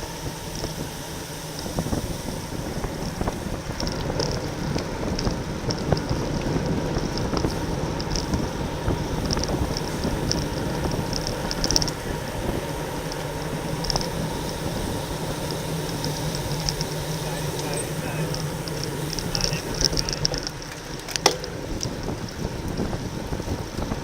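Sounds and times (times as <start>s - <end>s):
road and tyre noise: 0.0s - 24.0s
wind on microphone: 0.0s - 24.0s
high-pitched ticks: 9.2s - 22.9s.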